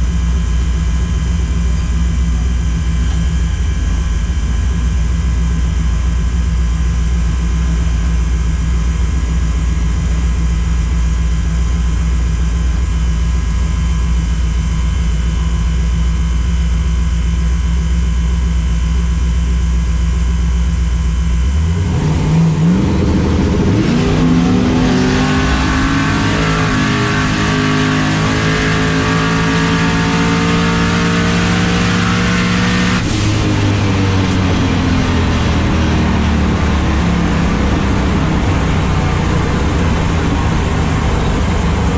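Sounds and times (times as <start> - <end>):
car engine idling and accelerating: 0.0 - 41.9.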